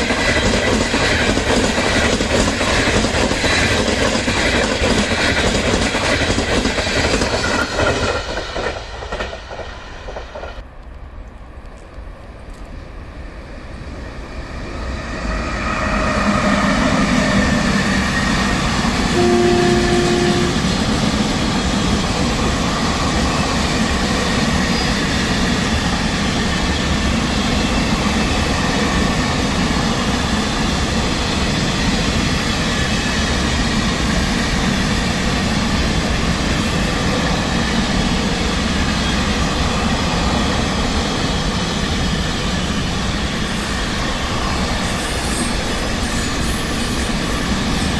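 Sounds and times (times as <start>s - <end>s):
train rolling through station: 0.0s - 47.9s
train horn blast: 19.1s - 20.9s.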